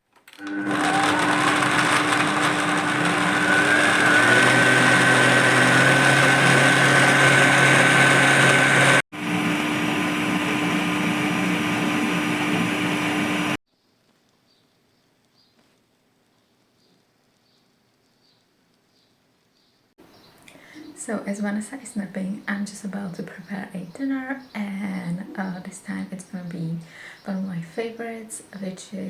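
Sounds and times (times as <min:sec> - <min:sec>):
electric blender running: 0:00.4 - 0:13.6.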